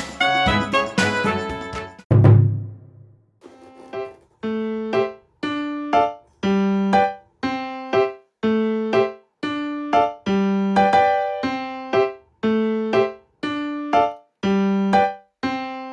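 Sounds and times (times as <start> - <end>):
keyboard background music: 0.0 - 2.0.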